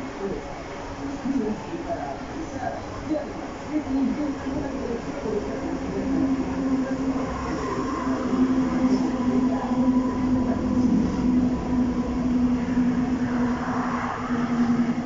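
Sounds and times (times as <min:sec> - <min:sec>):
metro train rumbling: 0:00.0 - 0:15.0
train drive whine: 0:00.0 - 0:15.0.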